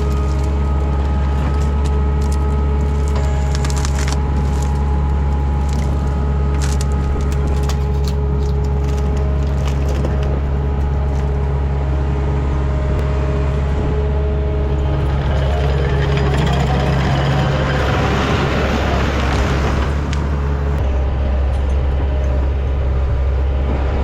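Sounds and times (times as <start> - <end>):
wood cracking and splintering: 0.0 - 12.0, 14.2 - 20.8
diesel engine under load: 0.0 - 24.0.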